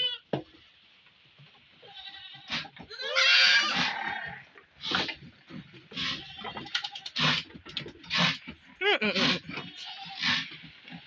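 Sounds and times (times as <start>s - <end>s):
goat kid bleating: 0.0s - 0.3s, 1.8s - 4.4s, 5.9s - 7.2s, 8.8s - 10.6s.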